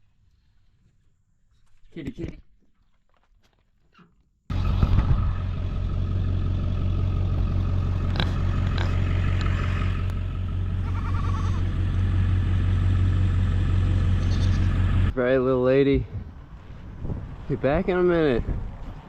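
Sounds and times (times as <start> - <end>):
vehicle engine rumbling: 4.5 - 19.0.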